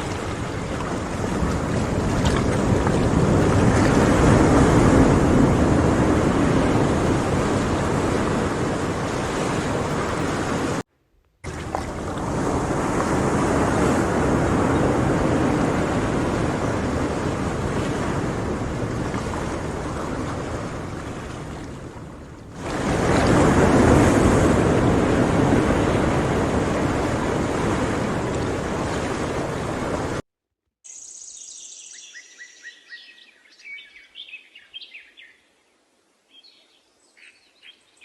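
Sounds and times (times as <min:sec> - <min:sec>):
sea waves washing ashore: 0:00.0 - 0:30.2.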